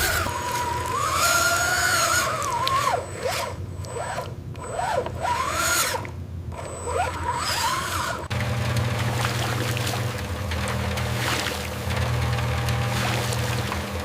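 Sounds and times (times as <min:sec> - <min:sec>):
small electric motors whining: 0:00.0 - 0:08.4.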